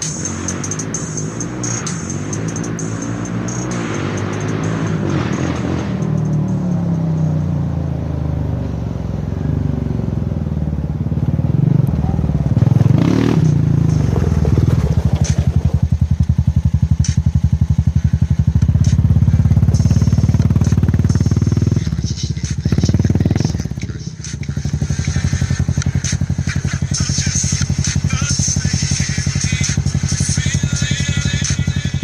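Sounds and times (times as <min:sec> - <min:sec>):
atv engine thumping: 0:09.1 - 0:31.8.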